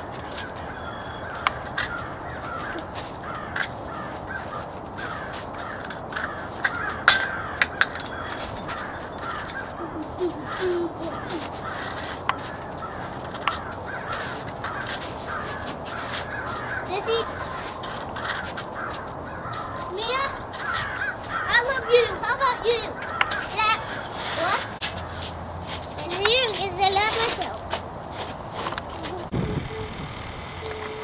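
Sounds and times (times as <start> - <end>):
flock of birds calling: 0.0 - 31.0
sharp clicks: 28.7 - 31.0.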